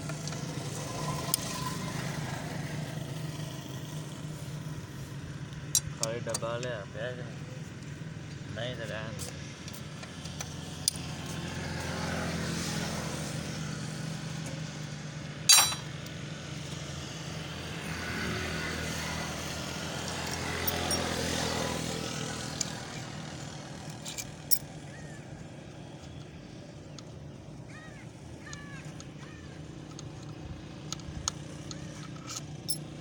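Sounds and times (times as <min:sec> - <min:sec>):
passing road traffic: 0:00.0 - 0:33.0
metal clank: 0:15.5 - 0:16.0
tool clicks: 0:15.5 - 0:16.1.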